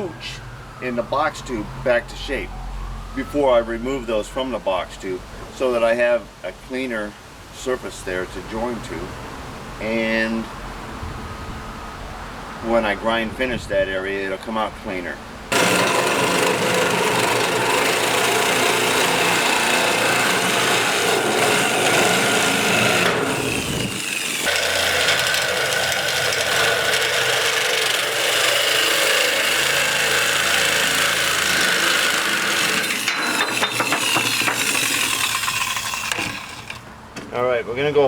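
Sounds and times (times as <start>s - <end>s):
power tool grinding steel bar: 15.5s - 36.9s.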